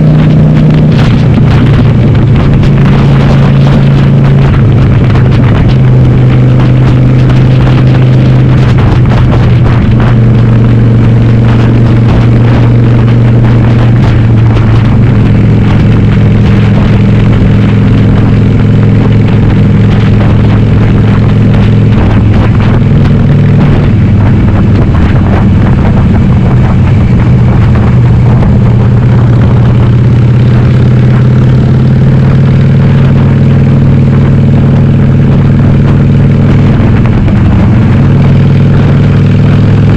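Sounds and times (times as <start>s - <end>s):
loud motorcycle engine: 0.0s - 39.9s.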